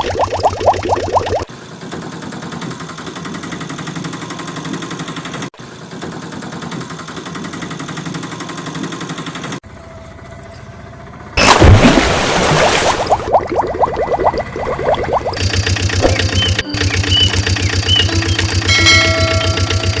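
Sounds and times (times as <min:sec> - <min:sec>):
engine idling: 0:14.2 - 0:20.0.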